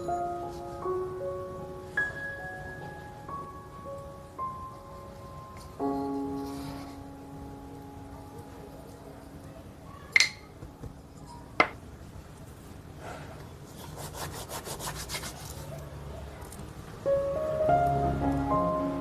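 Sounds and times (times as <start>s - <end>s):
soft piano music: 0.0s - 11.8s, 16.8s - 19.0s.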